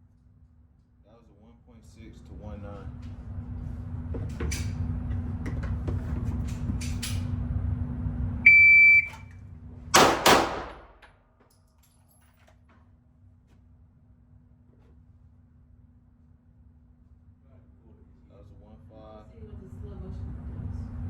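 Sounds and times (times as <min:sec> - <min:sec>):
shot timer beep: 0:08.5 - 0:09.2
pistol shots: 0:10.0 - 0:11.0
low rumble: 0:19.3 - 0:21.0.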